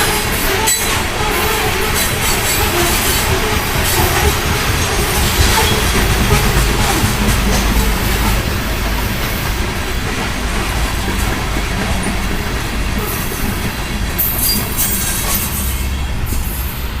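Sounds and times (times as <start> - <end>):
high-pitched wheel squeals: 0.0 - 8.5, 14.2 - 16.8
train wheels rumbling on rail: 0.0 - 17.0.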